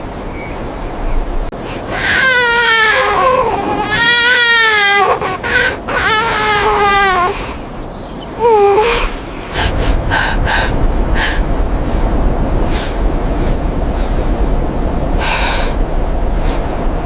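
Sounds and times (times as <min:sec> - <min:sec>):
child crying: 0:01.9 - 0:07.6, 0:08.3 - 0:09.2.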